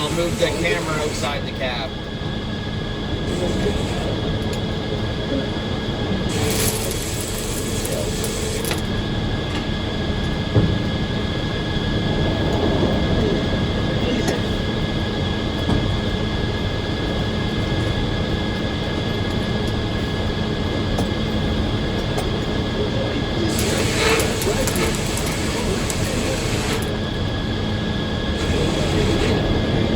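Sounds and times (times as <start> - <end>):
high-pitched saw whine: 0.0 - 2.0, 3.2 - 9.0, 22.8 - 29.9
sawmill machinery running: 0.0 - 29.9.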